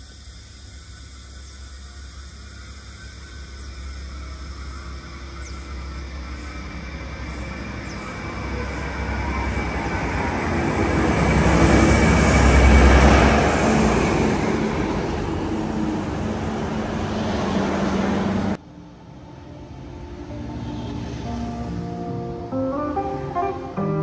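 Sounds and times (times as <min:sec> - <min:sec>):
diesel railcar engine: 0:00.0 - 0:24.0
train wheels on rails: 0:02.4 - 0:18.6.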